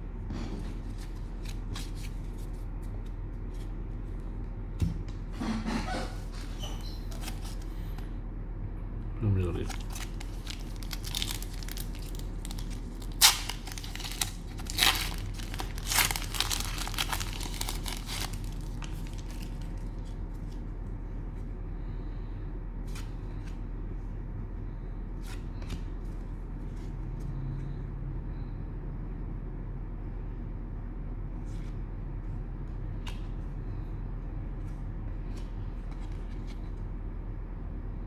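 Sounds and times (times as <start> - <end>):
cellophane wrapper crinkling: 9.6 - 20.2.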